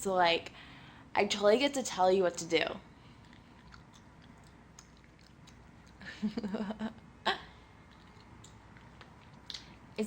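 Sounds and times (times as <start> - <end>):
wet mouth clicks: 3.2 - 6.1, 7.8 - 9.8.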